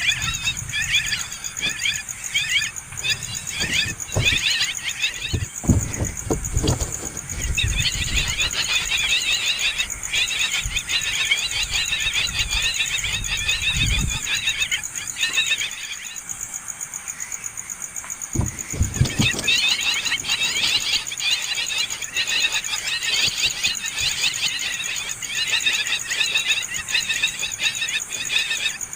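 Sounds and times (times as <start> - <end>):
nestling birds chirping: 0.0 - 28.9
low thumps: 3.0 - 8.2, 18.4 - 19.6.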